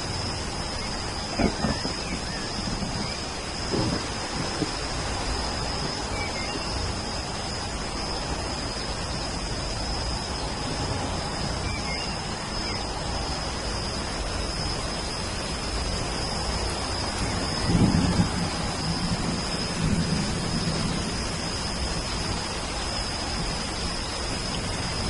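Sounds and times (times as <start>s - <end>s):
rain hiss: 0.0s - 25.0s
faint bird chirps: 0.7s - 4.0s, 6.1s - 6.9s, 11.6s - 12.9s.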